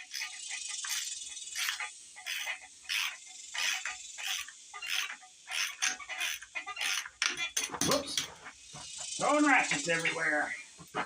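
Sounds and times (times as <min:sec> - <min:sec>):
hand ratchet clicking: 0:00.0 - 0:07.4.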